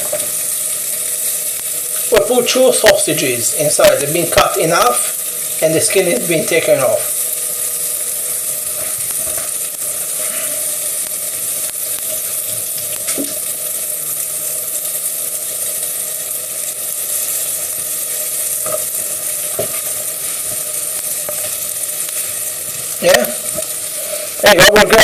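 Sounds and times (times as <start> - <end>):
food sizzling in a pan: 0.0 - 25.0.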